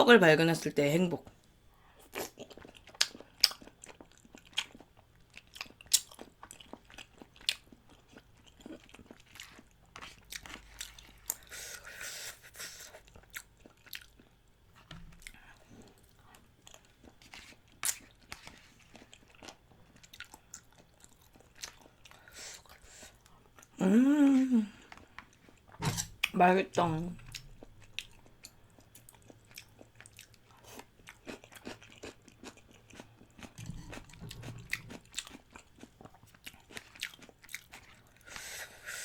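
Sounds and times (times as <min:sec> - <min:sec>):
chewing and biting food: 0:02.1 - 0:11.5, 0:13.0 - 0:23.7, 0:27.3 - 0:38.4.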